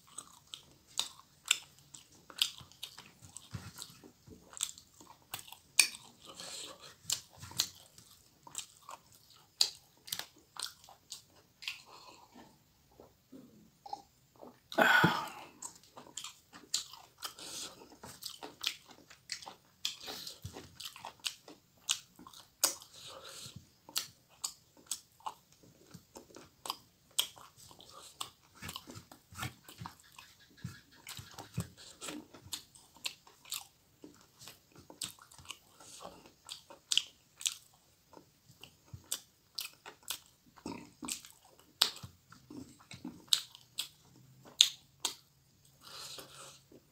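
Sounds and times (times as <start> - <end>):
mouth clicks and lip smacks: 13.8 - 38.3.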